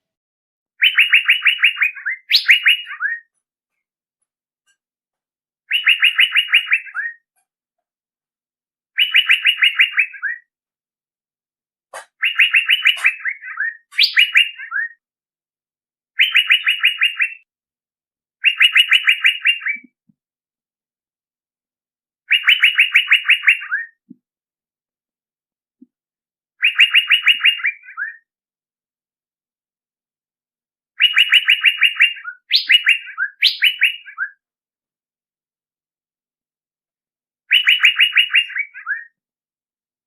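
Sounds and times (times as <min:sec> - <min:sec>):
bird calling clipped notes: 0:00.8 - 0:03.4, 0:11.9 - 0:15.0, 0:18.4 - 0:20.0, 0:31.0 - 0:34.4, 0:37.5 - 0:39.2.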